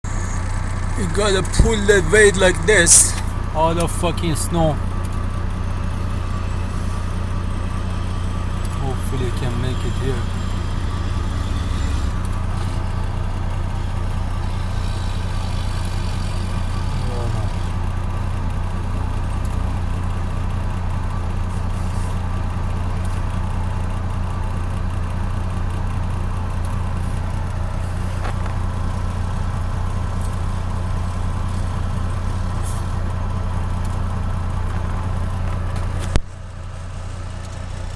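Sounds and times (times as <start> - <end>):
diesel truck engine humming: 0.0 - 37.9.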